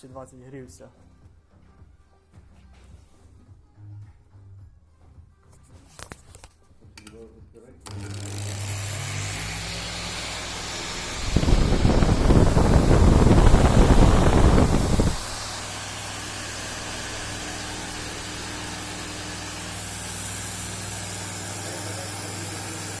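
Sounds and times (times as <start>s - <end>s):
electric fan motor humming: 7.9s - 23.0s
loud rumbling noise: 10.7s - 17.3s.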